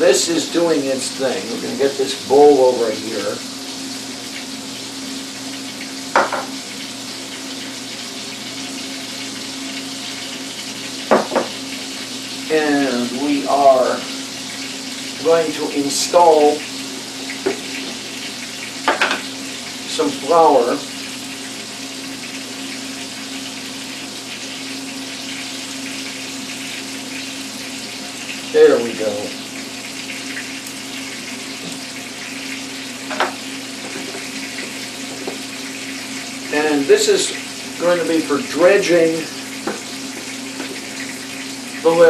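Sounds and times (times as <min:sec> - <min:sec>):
onions sizzling in a pan: 0:00.0 - 0:42.0
utensil knock: 0:11.1 - 0:11.5.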